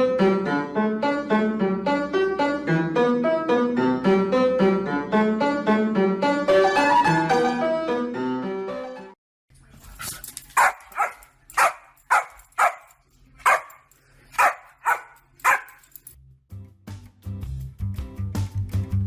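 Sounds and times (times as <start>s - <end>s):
piano music: 0.0s - 9.2s
dog barking: 10.6s - 15.9s.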